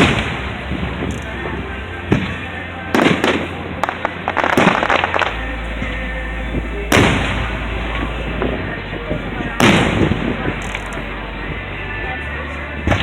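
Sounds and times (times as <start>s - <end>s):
firework crackling pops: 0.0s - 5.4s
firework bangs: 0.0s - 13.0s.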